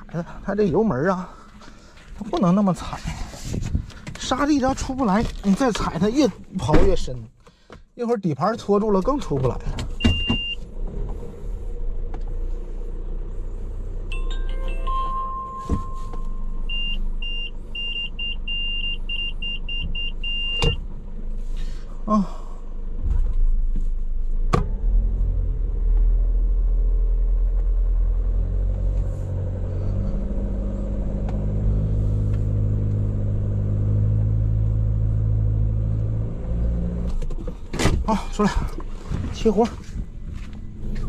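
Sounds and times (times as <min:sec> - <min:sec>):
vehicle engines rumbling under load: 0:00.0 - 0:08.0, 0:08.6 - 0:41.0
short electronic beeps: 0:14.9 - 0:20.7.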